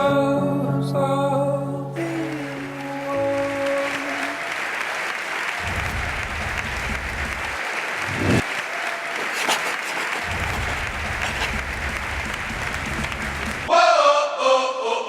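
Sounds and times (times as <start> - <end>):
crowd clapping: 2.0 - 13.7.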